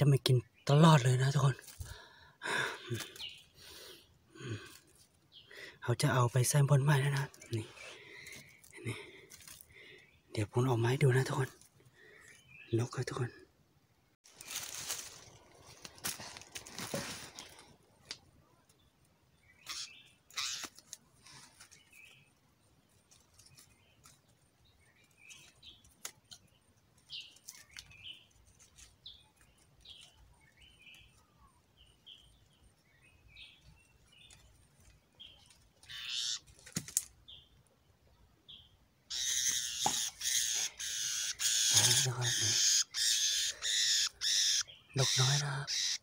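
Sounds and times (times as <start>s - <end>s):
bird chirps: 18.7s - 20.7s, 23.4s - 36.5s, 37.2s - 46.0s.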